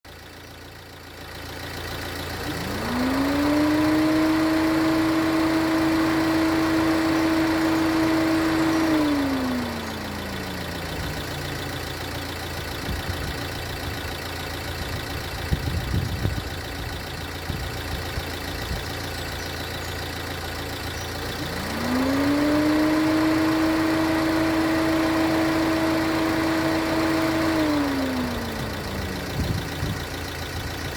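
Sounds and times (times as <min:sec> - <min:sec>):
fan whining: 0:21.4 - 0:30.0.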